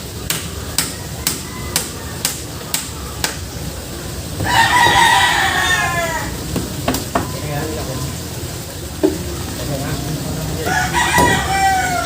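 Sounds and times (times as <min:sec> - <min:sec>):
rooster crowing: 0:00.9 - 0:02.2, 0:04.4 - 0:06.4, 0:10.6 - 0:12.0.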